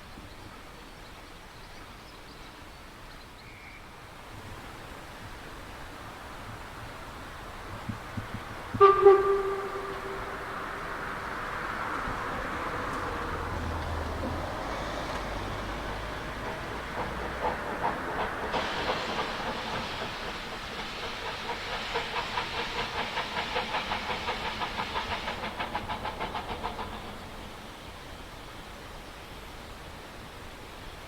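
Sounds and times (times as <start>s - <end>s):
train clattering past: 4.2s - 30.7s.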